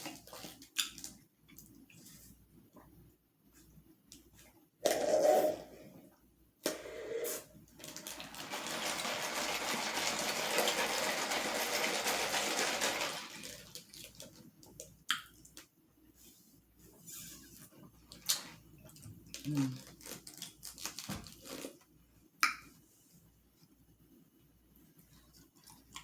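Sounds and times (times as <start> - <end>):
sipping through a straw: 4.8 - 5.8, 6.6 - 7.5.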